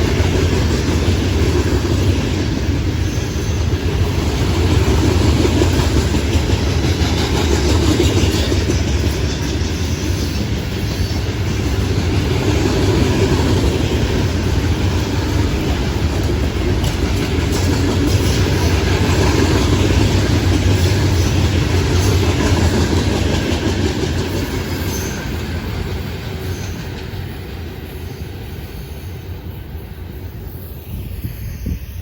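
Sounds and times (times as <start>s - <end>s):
steel wheels clicking over rail joints: 0.0s - 28.4s
freight train rolling past: 0.0s - 32.0s.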